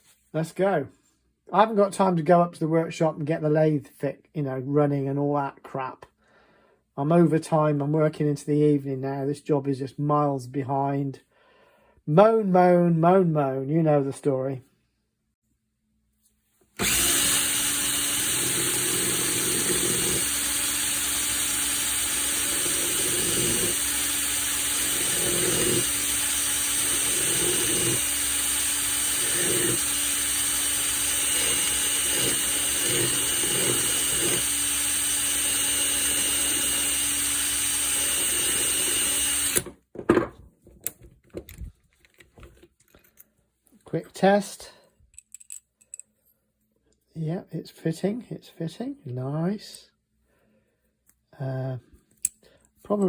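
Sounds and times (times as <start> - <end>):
file grinding on spinning screw: 16.8 - 39.7
cordless drill running: 16.8 - 39.8.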